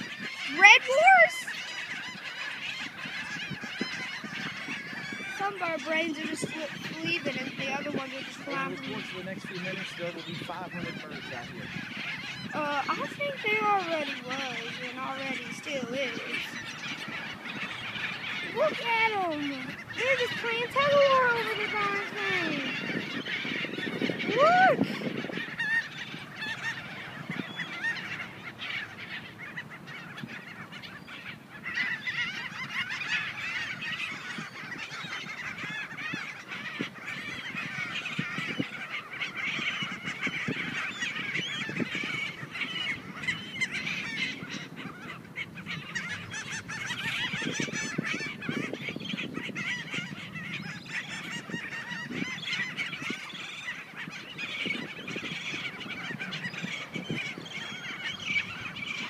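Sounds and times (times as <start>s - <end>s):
seagulls calling: 0.0s - 59.0s.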